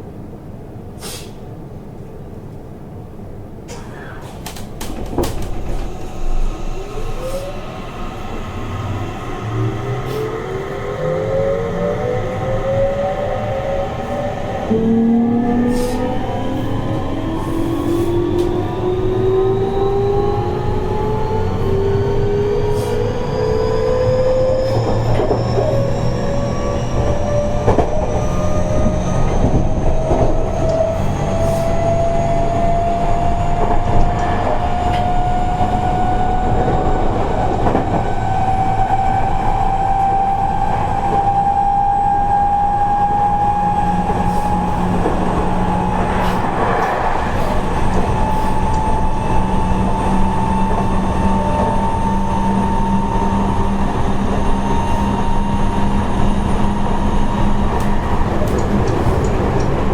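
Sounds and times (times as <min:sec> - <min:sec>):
train rumble inside carriage: 0:00.0 - 0:59.9
traction motor whine rising: 0:05.4 - 0:59.9
faint rail-joint clicks: 0:57.8 - 0:59.8.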